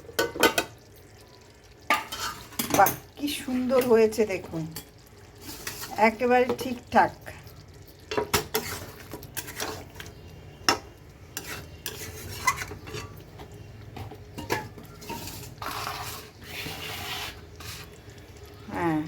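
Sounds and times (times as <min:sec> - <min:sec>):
spoon stirring thick curry: 0:07.7 - 0:18.4.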